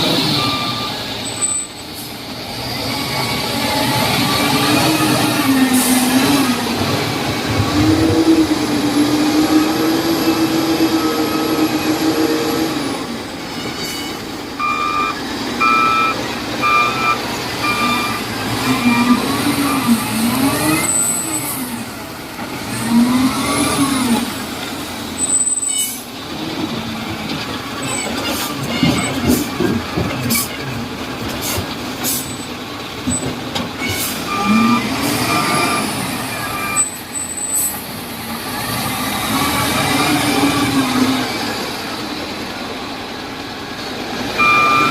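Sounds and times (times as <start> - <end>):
wheel loader diesel engine revving: 0.0 - 1.4, 2.1 - 13.5, 14.3 - 25.3, 34.0 - 44.9
reversing alarm beeps: 0.4 - 1.7, 13.9 - 21.5, 34.2 - 37.7, 44.4 - 44.9.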